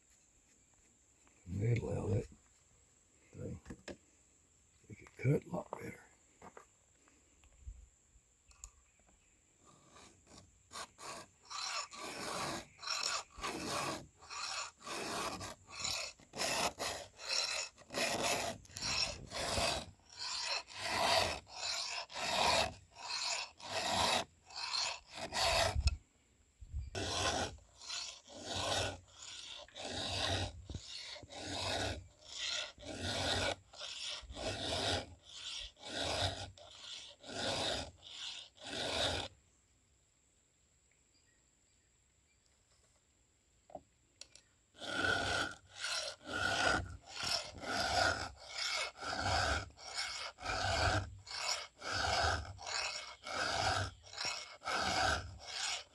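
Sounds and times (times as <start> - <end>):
file rasping on chainsaw chain: 1.5 - 2.3, 9.7 - 26.0, 26.9 - 39.4, 44.2 - 55.9.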